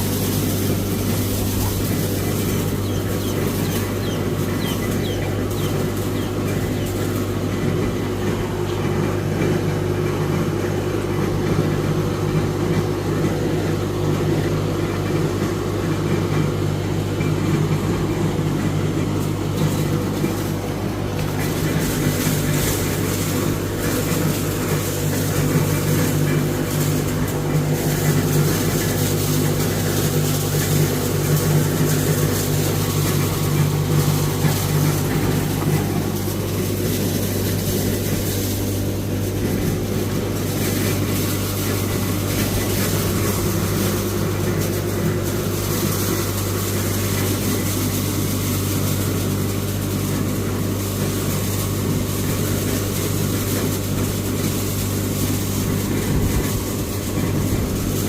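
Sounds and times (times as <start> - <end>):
low engine hum: 0.0 - 58.0.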